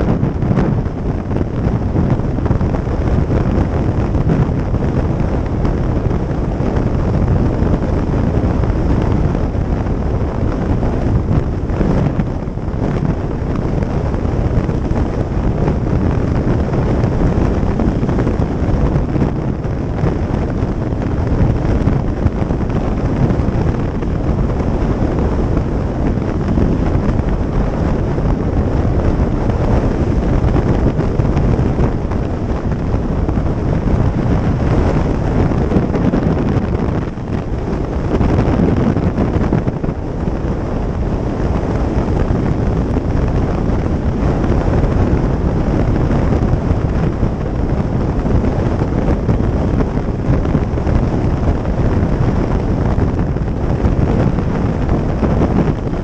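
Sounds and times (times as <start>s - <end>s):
motorcycle noise: 0.0s - 56.0s
wind rush on microphone: 0.0s - 56.0s.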